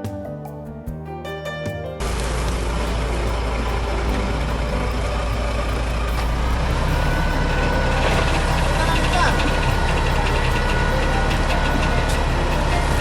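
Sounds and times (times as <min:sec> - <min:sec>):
music: 0:00.0 - 0:13.0
engine running with low drone: 0:02.1 - 0:13.0.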